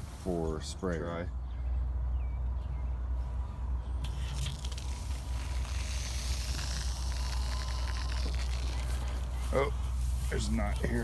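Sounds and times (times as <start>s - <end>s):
water hissing from garden hose: 4.0s - 10.4s.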